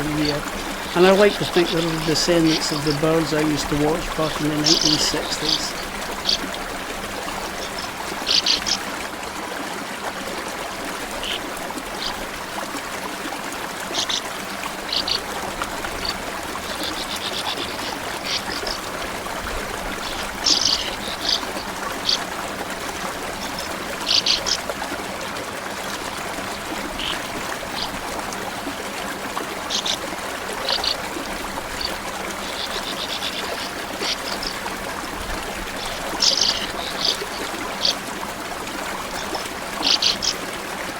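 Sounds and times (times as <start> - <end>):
small birds chirping: 0.0 - 8.9, 14.8 - 15.3, 15.9 - 18.9, 19.8 - 22.3, 23.3 - 24.6, 26.9 - 28.0, 29.7 - 30.0, 31.6 - 34.7, 35.6 - 38.0, 39.0 - 40.4
stream running: 0.0 - 40.9.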